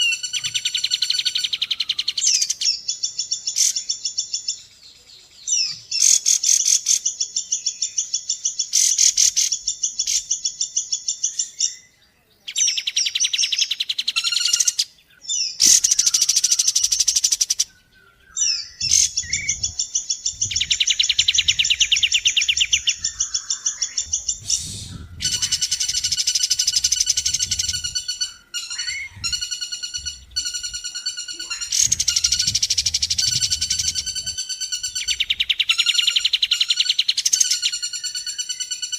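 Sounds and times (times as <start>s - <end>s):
rattling bird trills: 18.3s - 38.9s.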